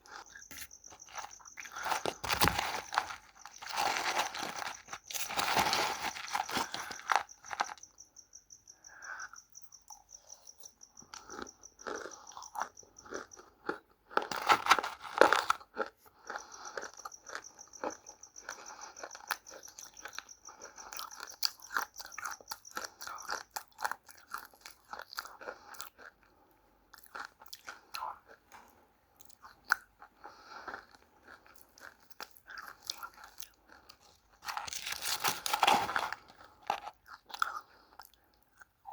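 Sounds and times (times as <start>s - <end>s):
crunching dry clay: 0.0s - 7.8s, 14.2s - 15.7s, 33.9s - 37.9s.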